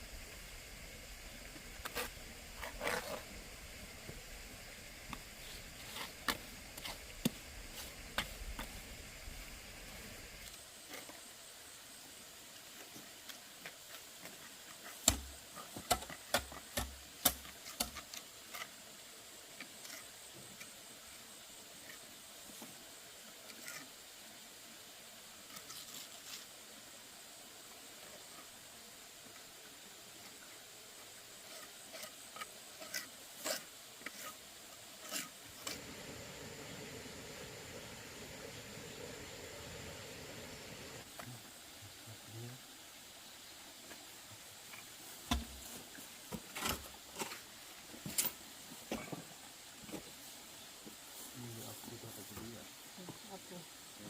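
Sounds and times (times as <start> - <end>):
low background noise: 0.0 - 54.0.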